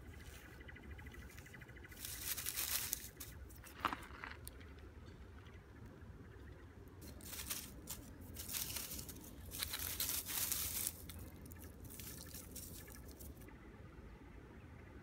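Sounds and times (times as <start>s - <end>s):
material crinkling and crackling: 7.0s - 13.5s.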